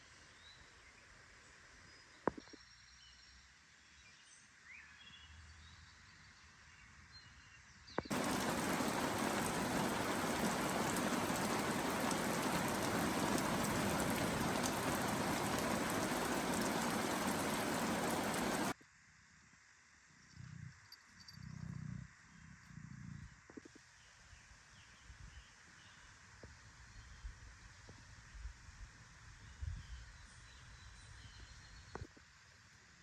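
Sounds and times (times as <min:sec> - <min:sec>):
rush of water: 0:08.1 - 0:18.8.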